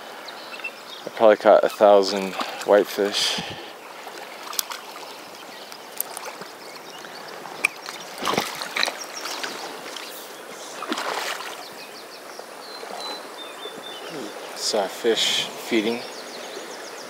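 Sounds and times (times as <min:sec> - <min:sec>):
river current rushing: 0:01.6 - 0:17.0
short splashes: 0:07.7 - 0:11.7.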